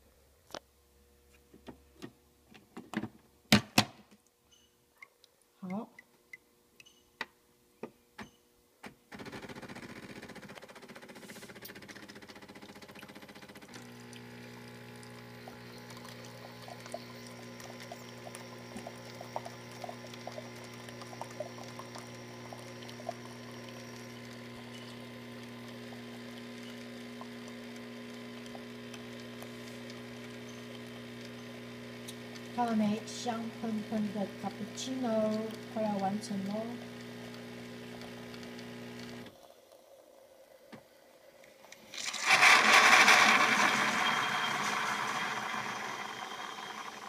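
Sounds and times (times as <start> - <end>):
coffee machine pump hum: 10.2 - 47.0
small crackling spurts: 10.4 - 40.6
milk pouring into cup: 12.0 - 36.2, 41.9 - 47.0.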